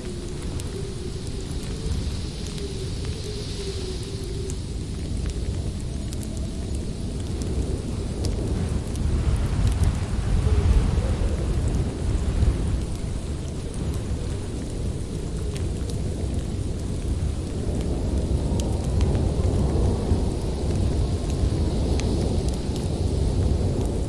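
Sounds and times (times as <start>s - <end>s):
strong wind rumbling: 0.0s - 24.0s
wood fire crackling: 0.0s - 24.0s.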